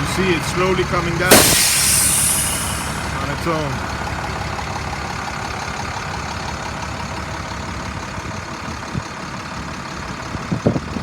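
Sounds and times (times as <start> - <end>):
diesel truck engine idling: 0.0 - 11.0
short thump: 1.3 - 3.2.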